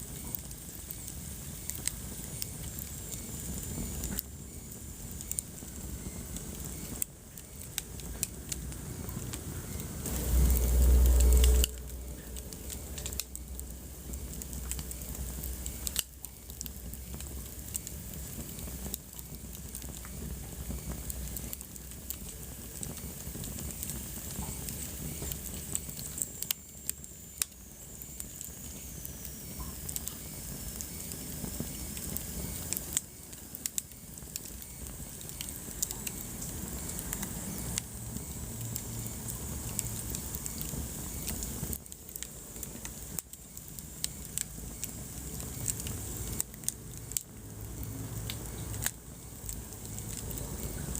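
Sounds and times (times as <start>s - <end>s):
wood fire crackling: 0.0s - 50.9s
loud low rumble: 8.9s - 15.4s.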